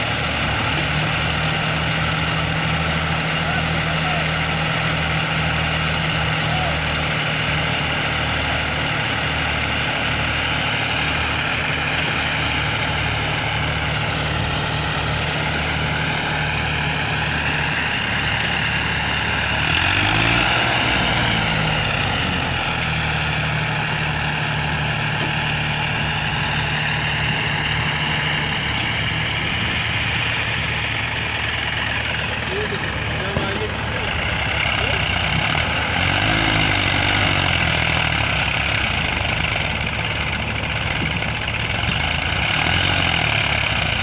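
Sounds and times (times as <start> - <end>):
tractor diesel engine idling: 0.0 - 44.0.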